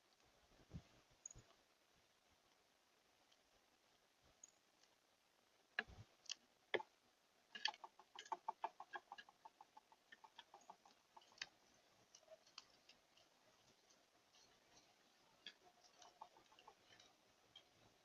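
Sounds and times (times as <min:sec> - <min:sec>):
bird clicking and ticking: 0:07.5 - 0:18.0.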